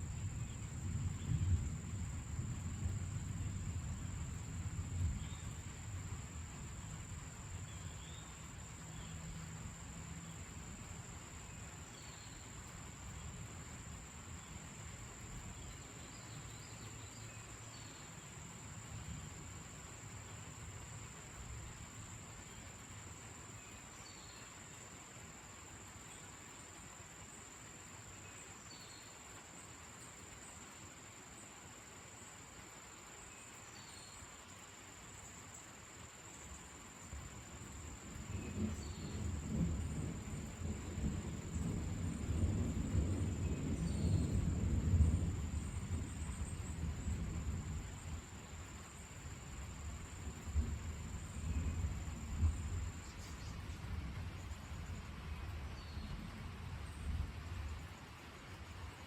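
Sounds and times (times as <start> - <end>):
crickets trilling: 0.0 - 59.0
distant thunder rumbling: 0.1 - 8.1, 37.8 - 57.8.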